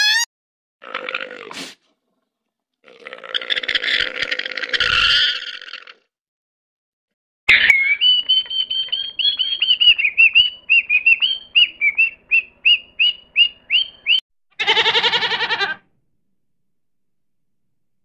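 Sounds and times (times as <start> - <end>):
bird whistling: 7.5 - 14.2
goat bleating: 14.6 - 15.8.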